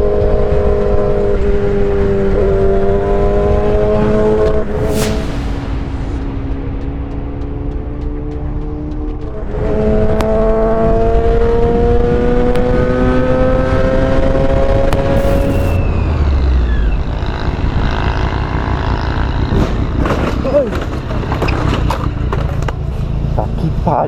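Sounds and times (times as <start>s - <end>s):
vehicle engine accelerating: 0.0s - 24.0s
wind and road noise: 0.0s - 24.0s
falling whine: 4.5s - 8.6s, 15.0s - 18.5s.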